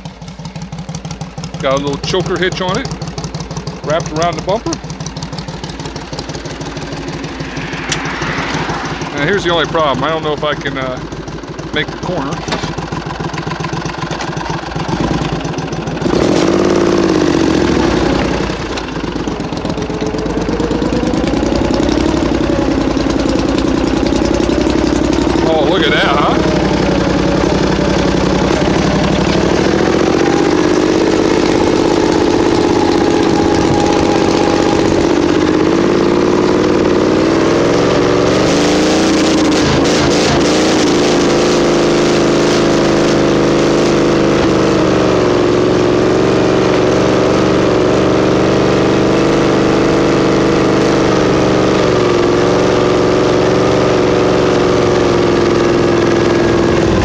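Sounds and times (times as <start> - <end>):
garden tractor engine under load: 1.4 - 5.0, 11.7 - 45.4, 54.6 - 57.0.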